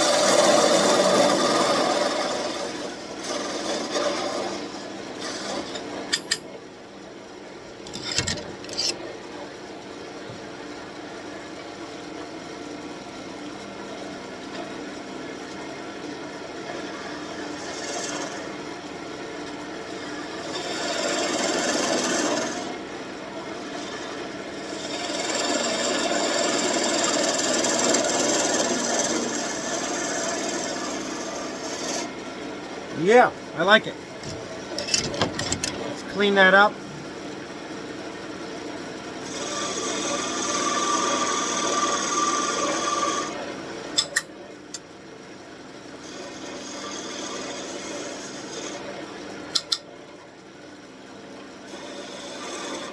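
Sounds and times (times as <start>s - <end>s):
wood lathe humming: 0.0s - 5.8s, 16.8s - 18.6s, 20.0s - 22.7s, 23.8s - 32.2s, 39.2s - 43.4s, 46.0s - 48.8s, 51.7s - 52.9s
tool scraping spinning wood: 0.0s - 6.4s, 7.8s - 9.0s, 17.5s - 18.6s, 20.2s - 22.8s, 23.8s - 32.2s, 32.9s - 36.7s, 39.2s - 43.4s, 46.0s - 48.8s, 51.7s - 52.9s.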